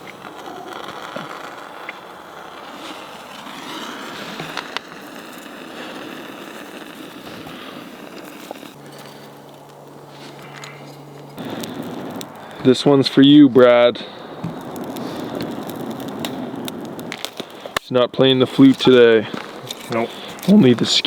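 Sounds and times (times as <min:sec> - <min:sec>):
campfire hissing: 0:00.0 - 0:21.0
fire crackles: 0:00.0 - 0:21.0.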